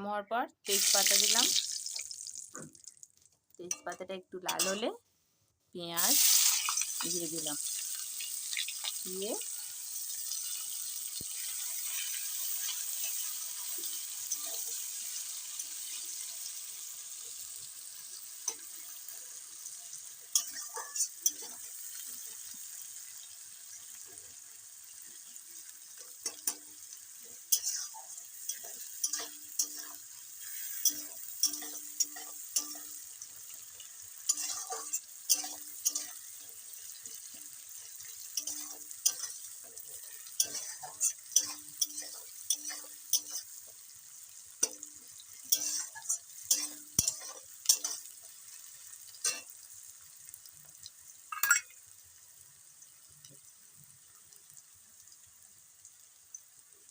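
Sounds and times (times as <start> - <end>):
onion sizzling in oil: 0.6 - 5.0, 5.8 - 56.9
spatula scraping a pan: 20.3 - 21.6, 27.3 - 33.0, 34.2 - 43.6, 45.4 - 48.2.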